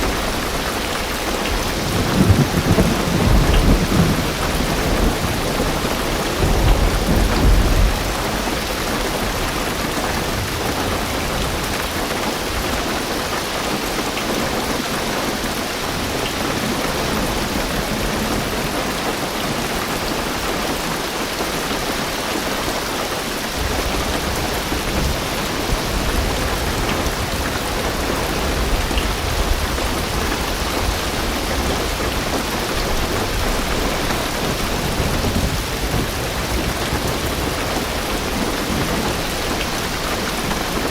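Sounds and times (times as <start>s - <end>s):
thunder rumble: 0.0s - 12.8s, 23.6s - 40.9s
heavy rain on a car roof: 0.0s - 40.9s.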